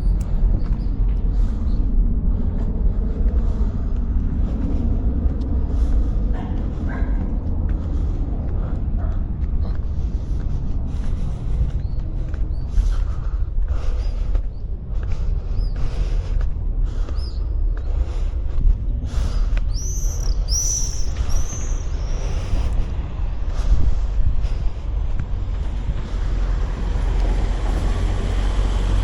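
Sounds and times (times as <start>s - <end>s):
low street rumble: 0.0s - 29.0s.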